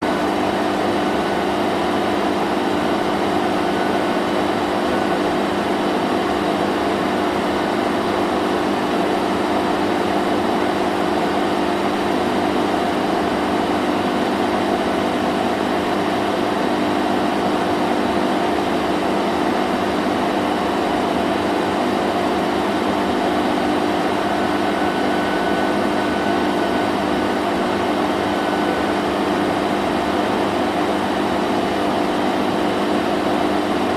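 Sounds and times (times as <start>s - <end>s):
vacuum cleaner running: 0.0s - 33.9s.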